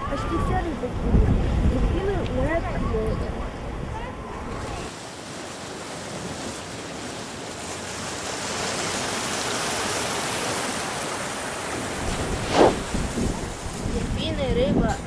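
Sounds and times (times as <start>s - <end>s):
sea surf washing on shore: 3.4s - 15.0s.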